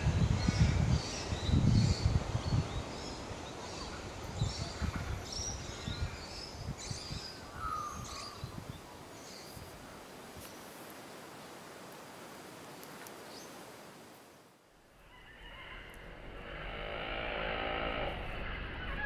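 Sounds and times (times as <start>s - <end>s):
small birds chirping: 0.4s - 9.8s
low rumbling noise: 15.8s - 19.0s.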